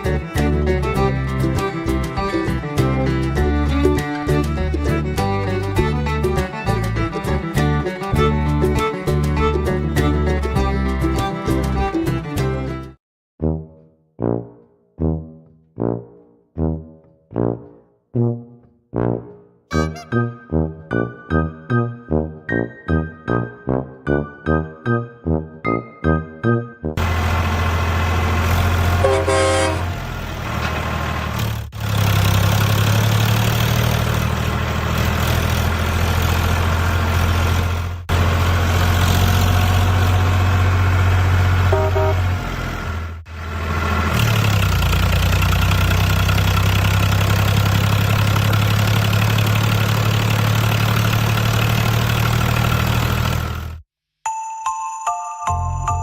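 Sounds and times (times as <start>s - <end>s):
horn toots: 13.4s - 21.1s, 28.9s - 30.0s, 41.7s - 42.5s
truck engine running: 27.0s - 53.8s.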